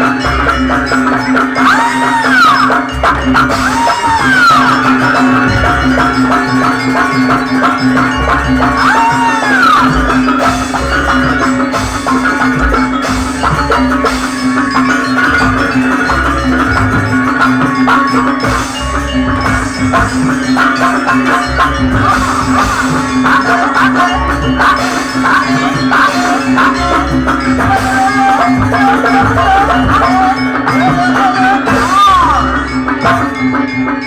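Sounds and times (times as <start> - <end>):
sliding melody line: 0.0 - 33.8
drums: 0.0 - 34.0
struck metal percussion: 0.0 - 34.0
low drone: 2.4 - 27.9.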